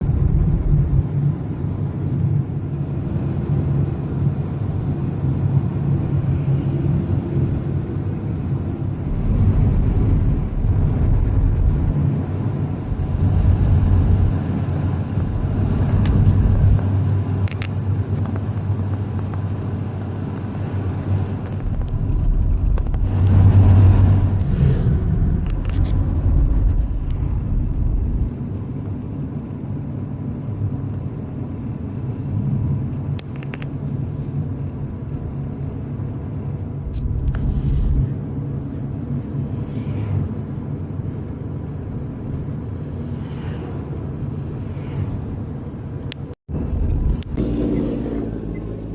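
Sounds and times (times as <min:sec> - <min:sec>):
car engine and road rumble: 0:00.0 - 0:48.9.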